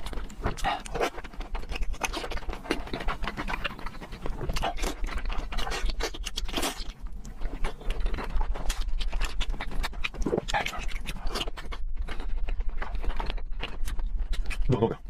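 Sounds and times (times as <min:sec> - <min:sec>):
chewing with smacking clicks: 0:00.0 - 0:15.0.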